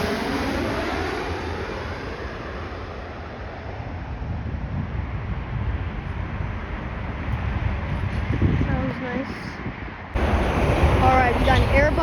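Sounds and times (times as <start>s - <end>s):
jet airliner engine noise: 0.0s - 12.0s
wind buffeting microphone: 3.0s - 12.0s.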